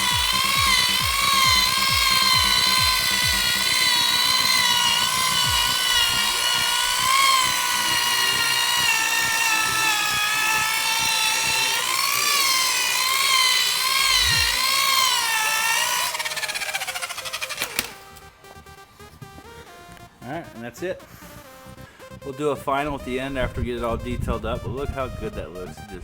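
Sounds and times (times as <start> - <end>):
electric buffer motor whine: 0.0 - 19.9.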